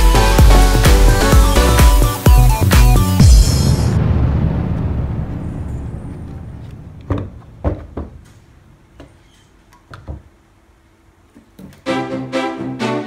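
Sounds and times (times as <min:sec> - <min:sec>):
music: 0:00.0 - 0:04.0, 0:11.7 - 0:13.0.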